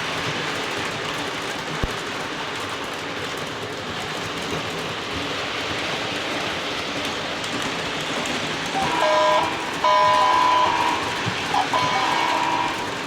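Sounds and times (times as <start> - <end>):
model train running on track: 0.0 - 13.0
train horn blasts: 8.8 - 13.0.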